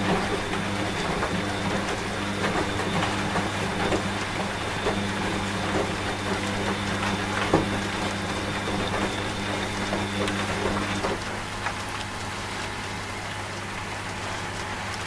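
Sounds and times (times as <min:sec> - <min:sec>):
washing machine humming: 0:00.0 - 0:15.0.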